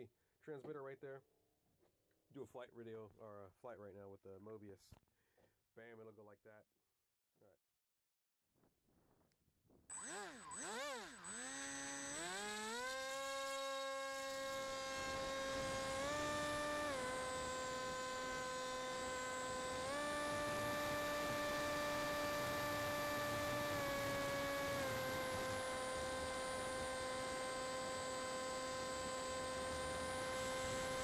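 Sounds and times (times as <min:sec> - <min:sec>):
electric motor propeller whine: 0:09.9 - 0:31.0.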